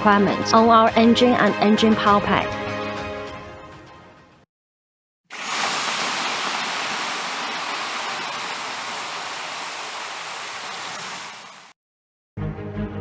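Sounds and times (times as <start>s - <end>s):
water rushing: 5.3s - 11.8s.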